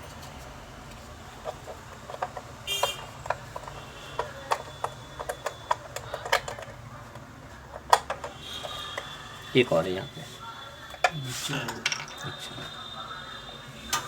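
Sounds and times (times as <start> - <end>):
hand tools clicking on metal: 1.4 - 9.1.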